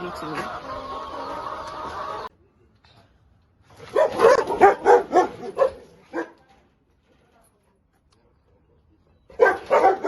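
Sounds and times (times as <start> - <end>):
dog barking: 3.9 - 6.4, 9.3 - 10.0.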